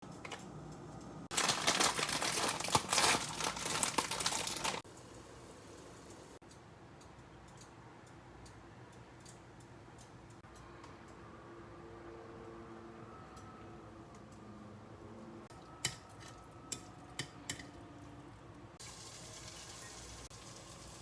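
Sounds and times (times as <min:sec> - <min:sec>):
plastic packaging crinkling: 0:01.3 - 0:04.8.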